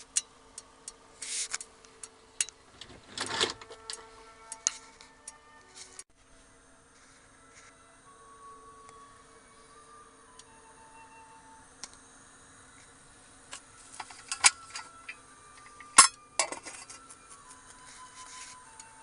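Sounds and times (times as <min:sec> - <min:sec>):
soft background music: 0:00.0 - 0:19.0
dishes and utensils clinking: 0:15.7 - 0:17.2.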